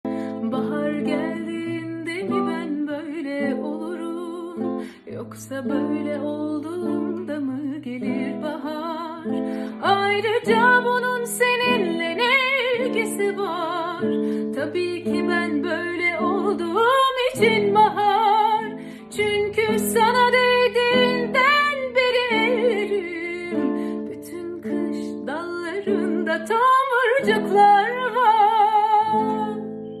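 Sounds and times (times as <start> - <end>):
plucked acoustic string instrument: 0.0 - 30.0
woman singing with vibrato: 0.0 - 30.0.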